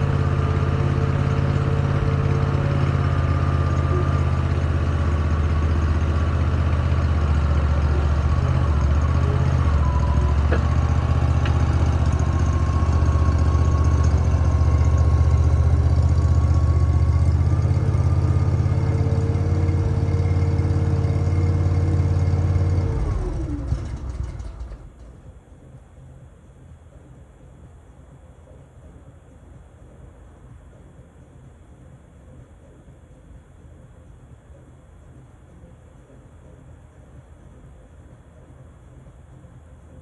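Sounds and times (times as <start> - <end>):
engine winding down: 0.0 - 25.3
engine idling: 0.0 - 25.5.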